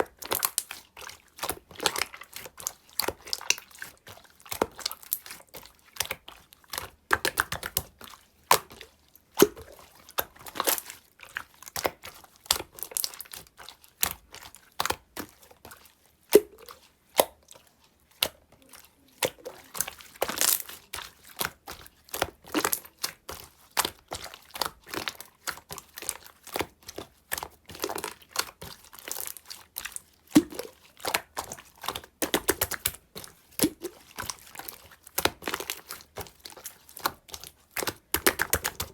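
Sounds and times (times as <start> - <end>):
slime clicking and popping: 30.4 - 33.0, 37.8 - 38.9.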